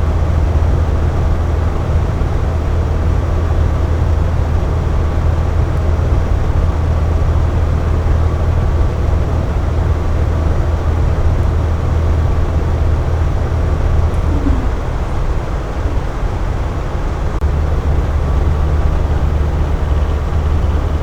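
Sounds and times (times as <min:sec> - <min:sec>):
air conditioner humming: 0:05.1 - 0:21.0.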